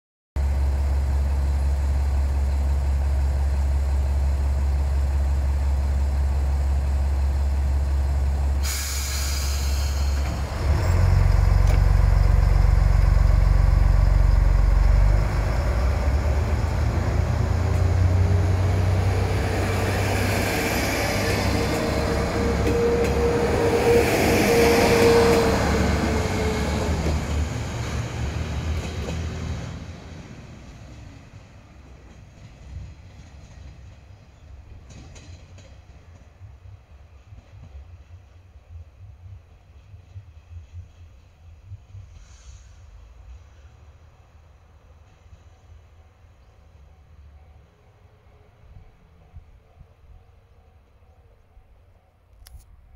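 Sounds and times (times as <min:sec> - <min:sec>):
train wheel whine: 0:00.4 - 0:49.6
diesel railcar engine: 0:00.4 - 0:52.9
brakes releasing hiss: 0:08.6 - 0:10.6, 0:42.1 - 0:43.1.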